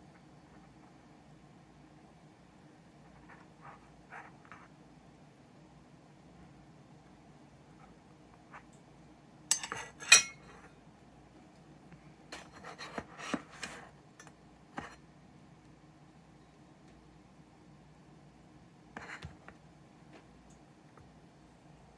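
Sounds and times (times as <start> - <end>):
metal parts clinking on hard surface: 9.5 - 10.4.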